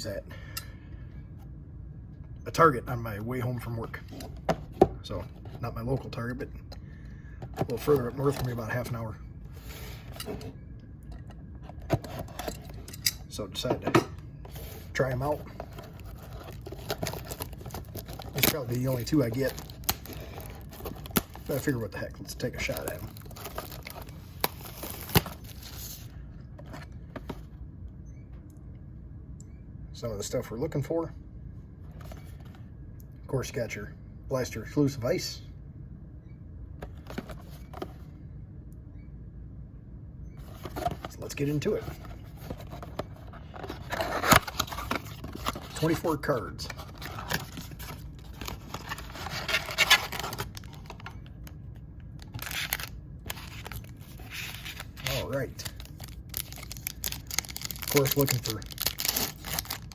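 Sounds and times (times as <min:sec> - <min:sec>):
cardboard and wrappers rustling: 0:14.5 - 0:27.5, 0:40.4 - 0:51.4, 0:52.2 - 0:59.9
plastic packaging crinkling: 0:14.6 - 0:26.1, 0:41.9 - 0:46.1, 0:46.7 - 0:51.6, 0:52.2 - 0:59.9.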